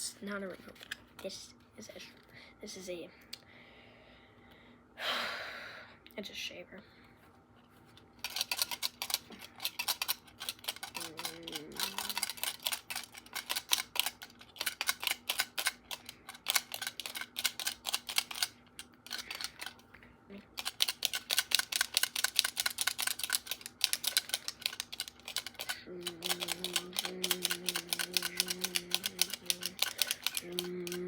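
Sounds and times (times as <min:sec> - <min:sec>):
plastic remote control clicking: 0:20.6 - 0:31.0.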